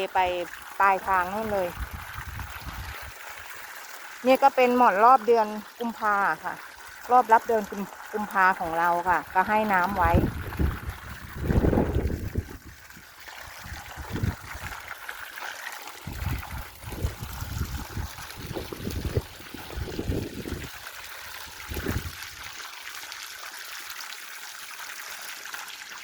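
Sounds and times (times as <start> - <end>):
water gushing from pipe: 0.0 - 26.0
wind buffeting microphone: 1.4 - 3.1, 10.0 - 14.8, 16.0 - 20.8, 21.6 - 22.3.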